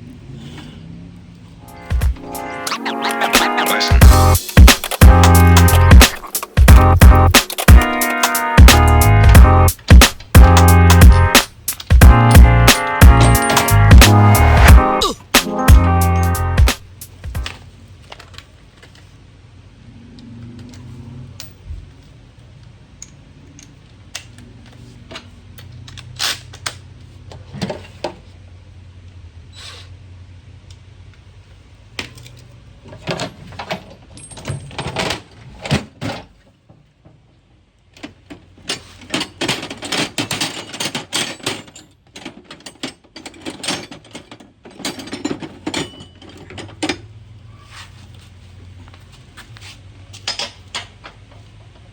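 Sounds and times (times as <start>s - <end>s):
metal tools clinking: 11.1s - 13.9s, 33.6s - 35.2s, 38.7s - 47.1s.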